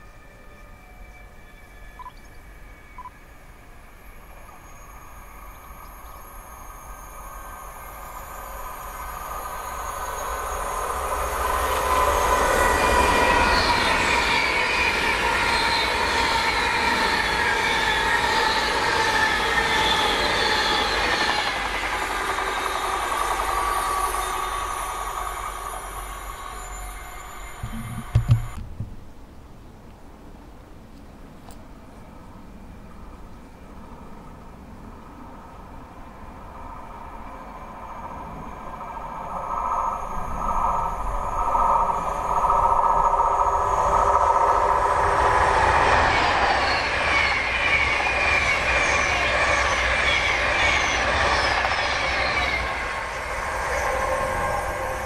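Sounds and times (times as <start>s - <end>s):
train rumble: 0.0s - 55.0s
high squealing tones: 22.6s - 28.6s
low thumps: 27.6s - 29.1s.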